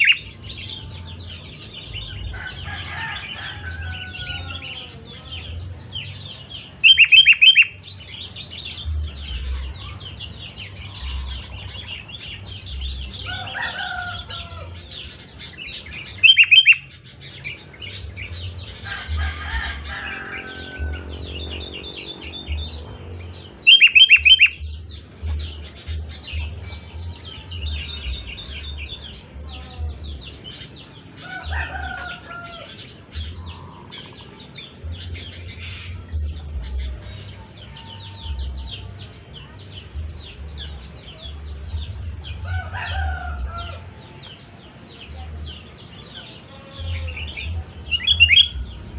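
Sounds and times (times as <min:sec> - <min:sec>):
twittering bird chirps: 0:00.0 - 0:48.9
bird calling loudly: 0:23.6 - 0:24.7.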